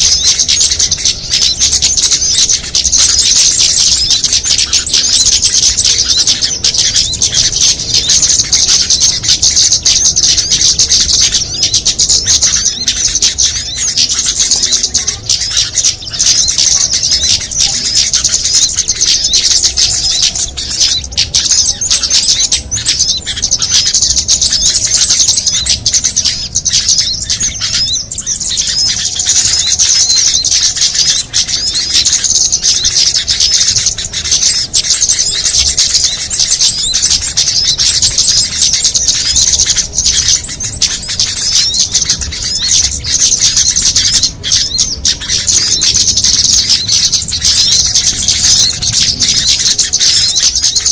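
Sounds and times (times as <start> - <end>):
small songbirds chirping: 0.0 - 50.9.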